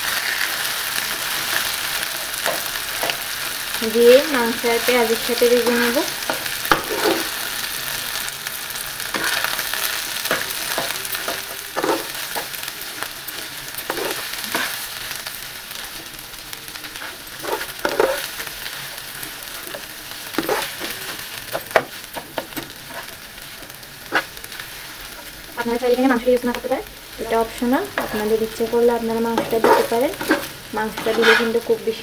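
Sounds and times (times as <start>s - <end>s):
food sizzling in a frying pan: 0.0s - 32.0s
metal spatula scraping a pan: 5.6s - 7.4s, 9.1s - 12.6s, 13.8s - 14.8s, 17.0s - 18.4s, 19.7s - 23.2s, 24.0s - 24.4s, 29.3s - 31.8s.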